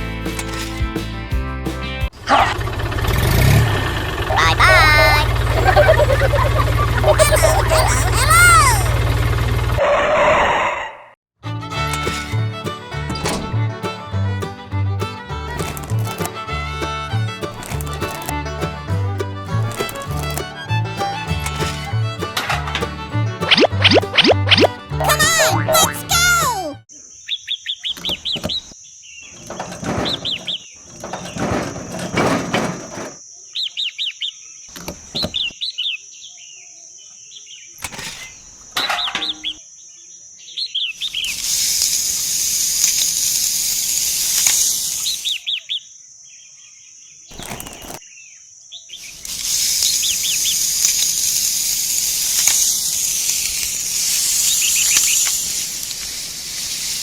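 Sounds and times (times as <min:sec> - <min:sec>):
small birds chirping: 0:04.3 - 0:09.0, 0:25.2 - 0:31.5, 0:33.2 - 0:57.0
loud hiss: 0:41.0 - 0:45.4, 0:49.0 - 0:57.0.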